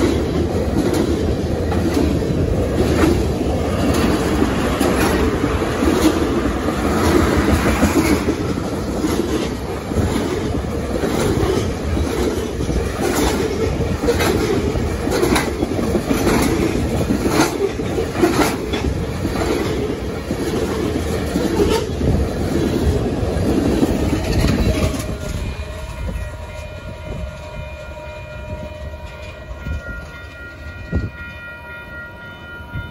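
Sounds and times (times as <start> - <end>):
wheels clacking over rail joints: 0.0 - 27.5
freight train rolling past: 0.0 - 32.9
distant train horn: 24.3 - 32.9.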